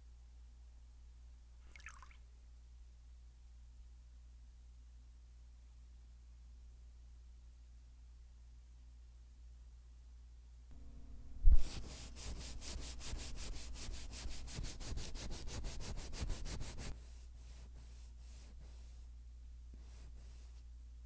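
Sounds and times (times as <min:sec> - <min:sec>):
hand sanding wood: 0:11.5 - 0:19.1, 0:19.8 - 0:20.7.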